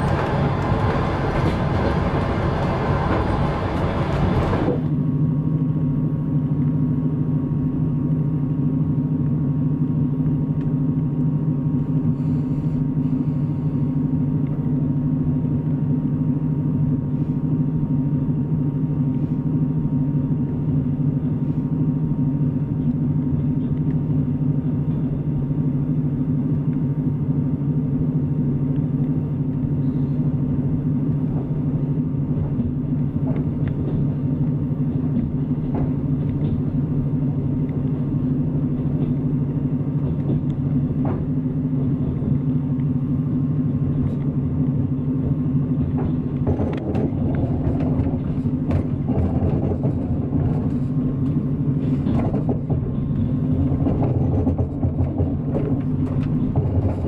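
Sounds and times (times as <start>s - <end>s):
train wheels on rails: 0.0s - 5.0s, 28.6s - 57.0s.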